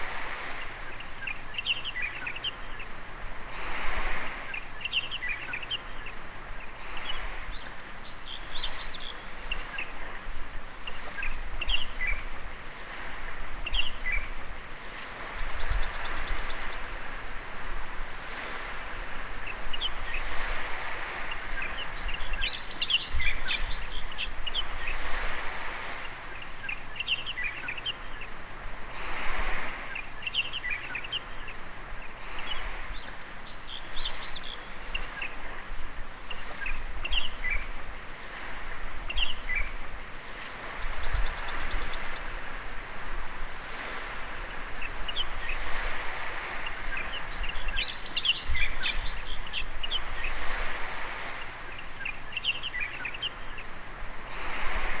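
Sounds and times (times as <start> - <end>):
small waves washing on beach: 0.0 - 55.0
songbirds chirping: 0.0 - 55.0.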